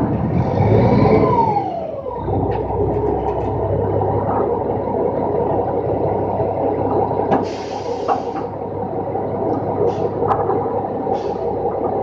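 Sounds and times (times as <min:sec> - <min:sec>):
truck engine and hydraulics drone: 0:00.0 - 0:12.0.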